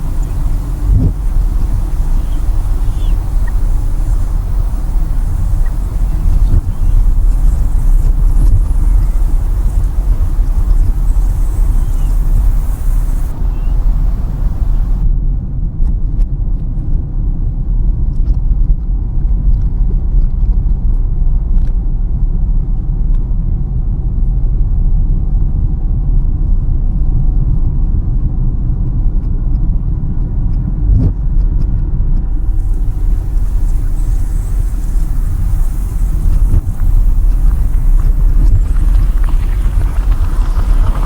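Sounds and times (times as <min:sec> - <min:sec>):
car road and engine rumble: 0:00.0 - 0:15.1, 0:32.2 - 0:41.0.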